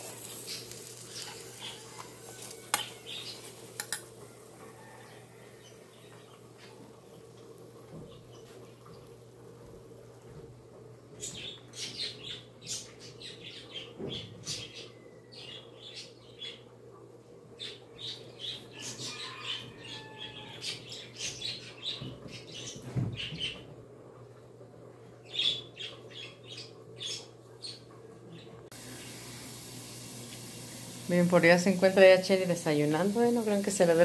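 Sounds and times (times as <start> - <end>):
birds chirping and squawking: 0.2 - 3.8, 11.2 - 16.7, 17.5 - 23.7, 25.2 - 28.6.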